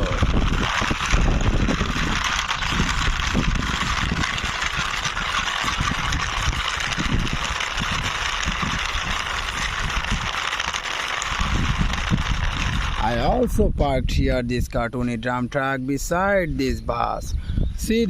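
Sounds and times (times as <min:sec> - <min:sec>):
plastic toy wheels rolling on wall: 0:00.0 - 0:13.8
wind buffeting microphone: 0:00.0 - 0:15.4, 0:16.0 - 0:18.0.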